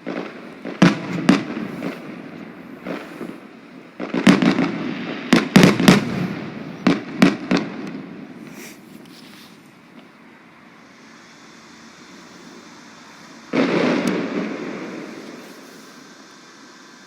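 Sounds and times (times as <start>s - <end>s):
fireworks banging: 0.0s - 17.0s
fireworks crackling: 0.0s - 17.0s.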